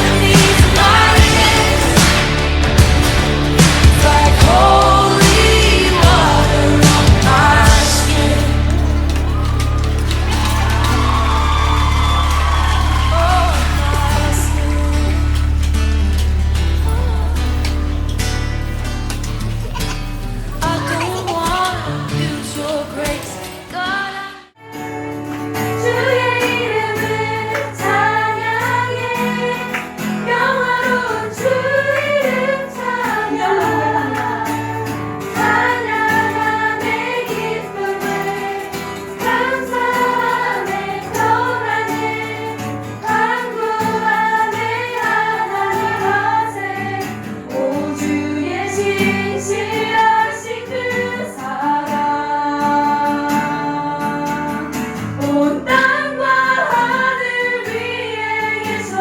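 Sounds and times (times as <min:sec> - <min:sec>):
voices singing together: 0:00.0 - 0:18.2, 0:20.6 - 0:25.0, 0:25.6 - 0:59.0
instrumental backing: 0:00.0 - 0:23.7.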